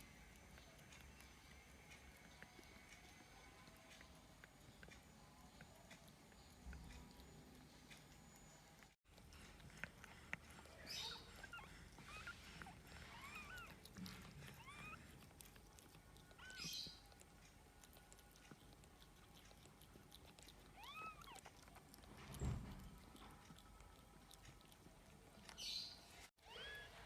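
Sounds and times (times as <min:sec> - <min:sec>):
newborn kittens mewing: 0:10.5 - 0:17.1, 0:20.7 - 0:21.6, 0:26.4 - 0:27.0.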